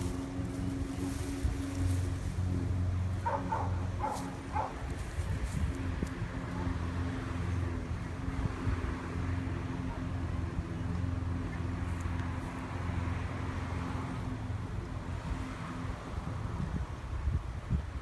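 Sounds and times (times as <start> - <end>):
dog barking: 3.2 - 4.9.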